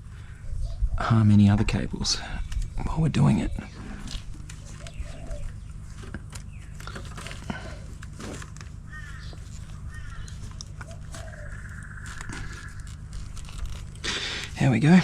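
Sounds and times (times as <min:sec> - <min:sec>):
clucking bird calls: 0:03.4 - 0:07.8, 0:08.8 - 0:13.3
wiring harness clicks and rustles: 0:04.0 - 0:14.0.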